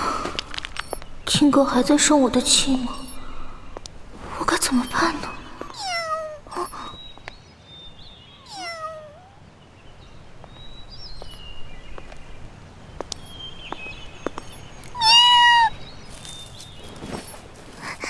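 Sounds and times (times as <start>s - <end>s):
cat meowing: 5.7s - 6.7s, 8.4s - 9.4s, 15.0s - 15.8s.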